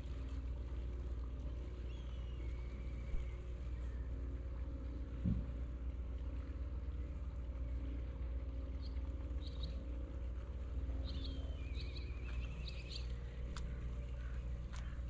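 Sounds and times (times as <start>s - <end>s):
faint hum: 0.0s - 15.0s
steady low rumble: 0.0s - 15.0s
songbird chirping and trilling: 1.7s - 4.1s, 8.7s - 9.9s, 10.9s - 15.0s.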